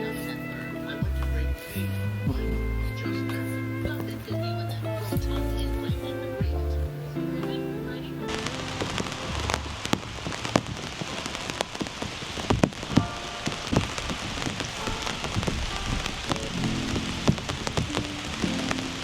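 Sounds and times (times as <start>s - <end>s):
steady rain falling: 0.0s - 19.0s
raindrops striking close by: 8.2s - 19.0s.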